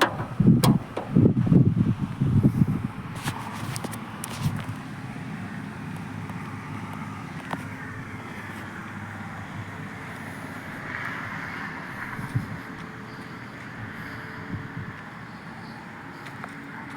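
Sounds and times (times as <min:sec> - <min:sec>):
short knock: 0:00.0 - 0:01.2
vehicle engine rumbling: 0:00.0 - 0:14.8.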